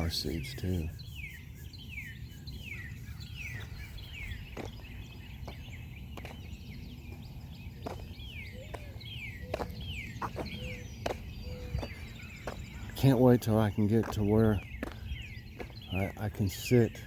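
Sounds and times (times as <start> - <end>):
low steady bird notes: 0.0 - 17.0
footsteps on a road: 2.8 - 17.0.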